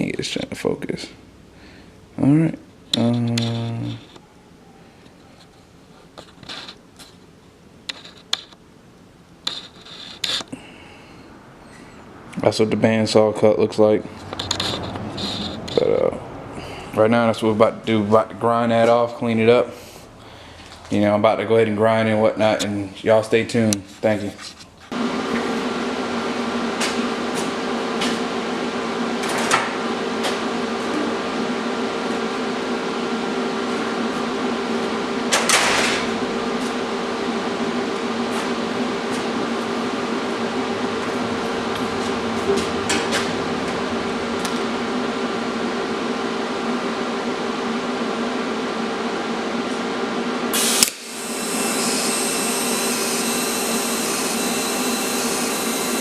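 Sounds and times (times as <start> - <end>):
electric grinder grinding steel: 50.6 - 56.0.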